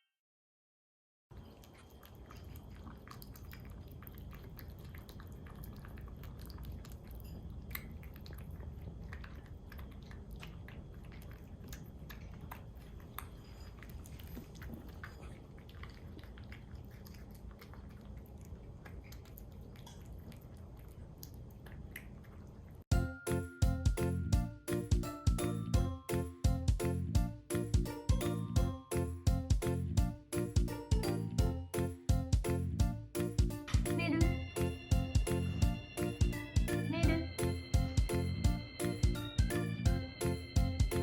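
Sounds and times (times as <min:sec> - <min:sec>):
cat chewing and eating: 0:01.3 - 0:23.3.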